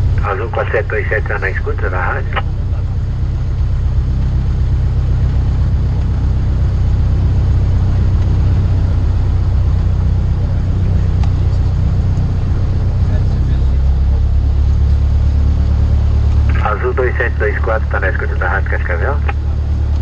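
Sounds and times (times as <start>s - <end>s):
airplane engine droning: 0.0s - 20.0s.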